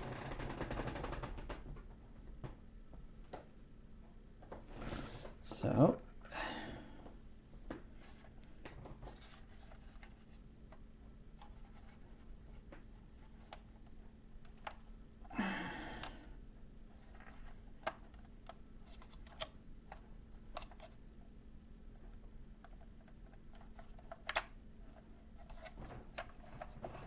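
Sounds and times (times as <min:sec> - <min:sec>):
low steady hum: 0:00.0 - 0:27.0
soft breath: 0:06.2 - 0:07.2, 0:15.3 - 0:16.4.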